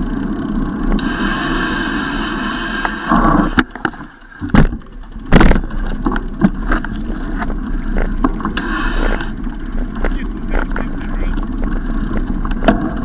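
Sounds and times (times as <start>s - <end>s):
bicycle riding rumble: 0.0s - 13.0s
knocks and rattles: 3.6s - 8.6s, 9.4s - 13.0s.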